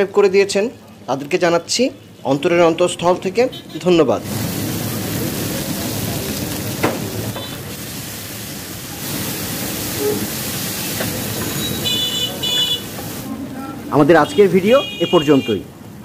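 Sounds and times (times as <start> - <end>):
meat sizzling in oil: 4.2 - 13.3.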